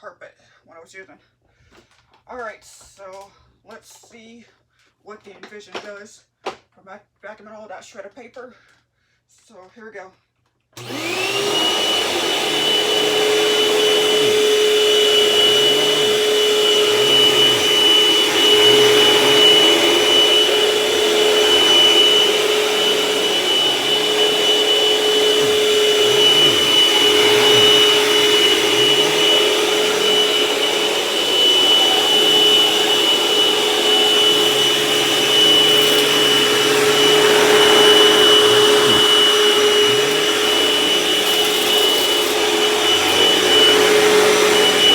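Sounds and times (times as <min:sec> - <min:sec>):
vacuum cleaner motor whine: 0:10.8 - 0:44.9.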